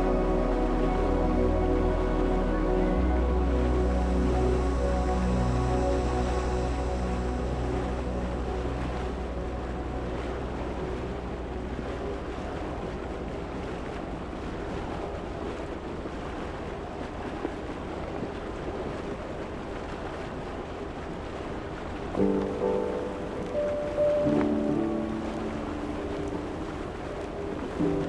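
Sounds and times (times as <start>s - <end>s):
music: 0.0s - 13.8s, 22.2s - 28.0s
rushing water: 0.0s - 28.0s.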